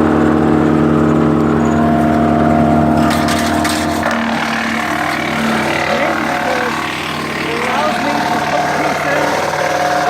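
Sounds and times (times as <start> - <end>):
wood chipper engine running: 0.0 - 10.0.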